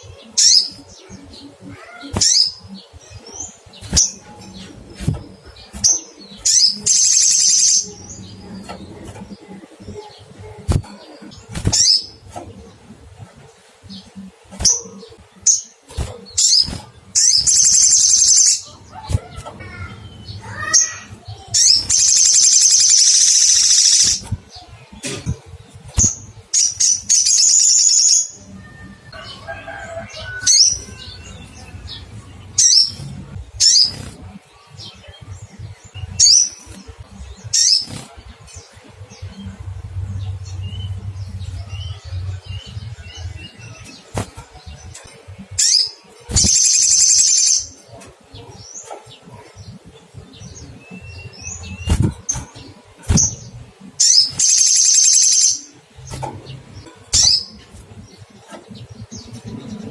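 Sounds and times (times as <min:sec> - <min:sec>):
bird chirping: 0:00.0 - 0:59.9
high bird trills: 0:16.4 - 0:24.2.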